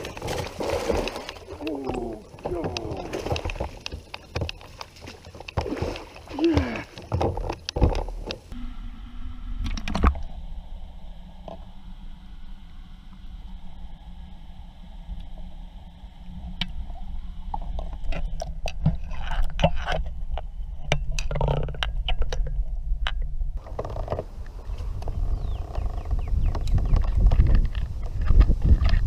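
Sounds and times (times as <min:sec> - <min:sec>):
steady low rumble: 0:08.2 - 0:29.0.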